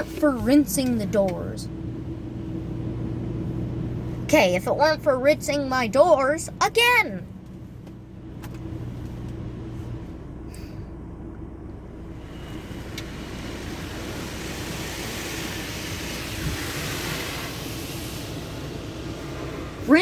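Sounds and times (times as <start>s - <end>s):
steady low hum: 0.0s - 20.0s
water spray hitting car body: 12.3s - 19.8s.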